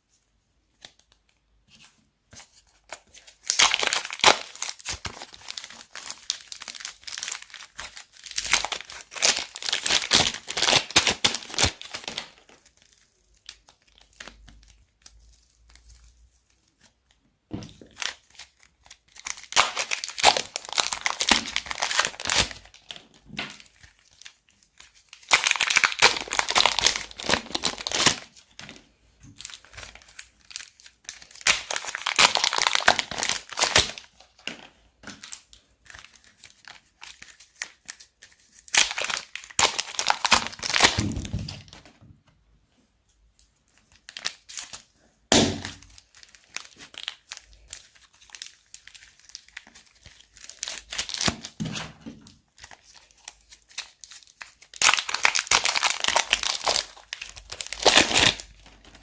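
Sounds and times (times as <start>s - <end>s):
plastic bags crinkling: 2.8s - 14.7s, 17.8s - 28.8s, 29.4s - 41.9s, 43.8s - 51.6s, 52.6s - 59.0s
thump: 41.0s - 41.6s.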